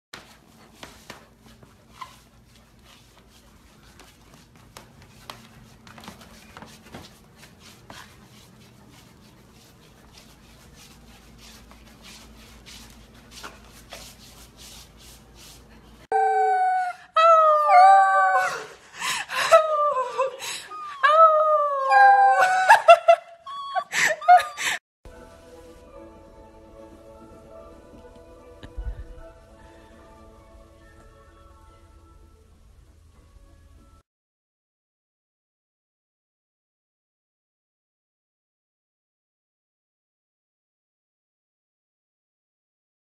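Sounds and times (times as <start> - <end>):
puppy howling: 16.1 - 18.7, 19.6 - 24.8.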